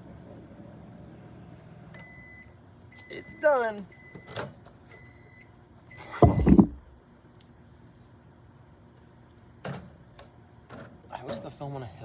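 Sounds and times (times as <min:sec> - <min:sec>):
microwave oven beeping: 0:00.0 - 0:06.8
loud knock and rattle: 0:06.2 - 0:06.8.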